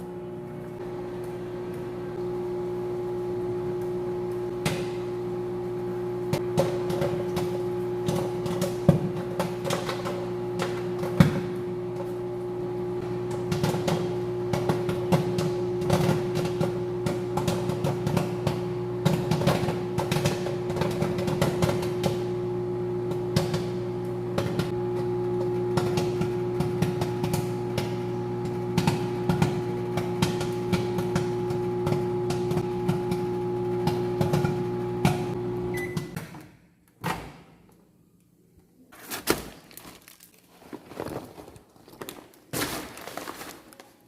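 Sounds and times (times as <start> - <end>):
microwave oven humming: 0.0 - 36.2
popcorn popping: 6.3 - 12.1, 13.0 - 36.3.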